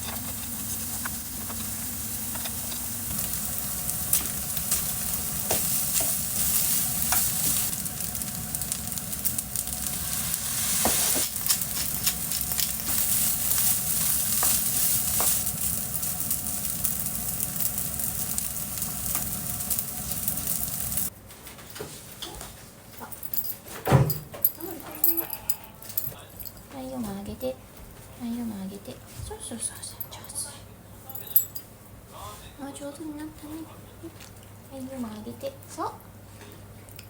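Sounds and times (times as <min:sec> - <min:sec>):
food sizzling in a frying pan: 0:00.0 - 0:21.1.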